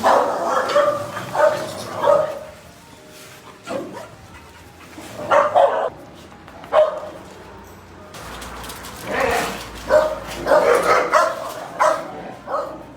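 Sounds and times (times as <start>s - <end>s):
dog barking: 0.0s - 2.5s, 5.2s - 5.9s, 6.7s - 7.1s, 9.8s - 12.9s.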